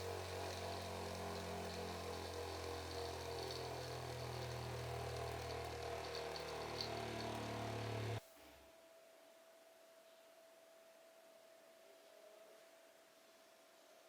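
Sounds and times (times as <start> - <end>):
bench grinder motor humming: 0.0 - 8.2.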